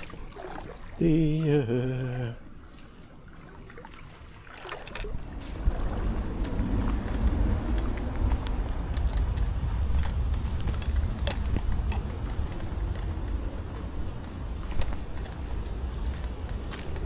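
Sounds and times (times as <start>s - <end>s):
fishing tackle clicks and clinks: 4.6s - 17.0s
steady low rumble: 5.0s - 17.0s.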